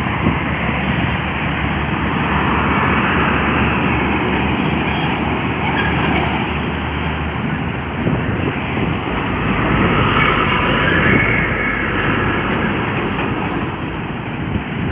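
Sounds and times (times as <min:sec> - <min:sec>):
heavy trucks on highway: 0:00.0 - 0:14.9.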